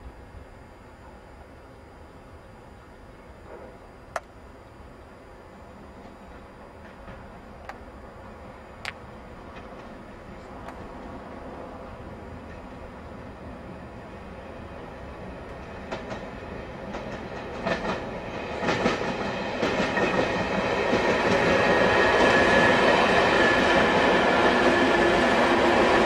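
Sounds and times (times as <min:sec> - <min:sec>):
train rumble: 0:00.0 - 0:26.0
train wheels clicking on rail joints: 0:06.0 - 0:11.6, 0:14.7 - 0:26.0.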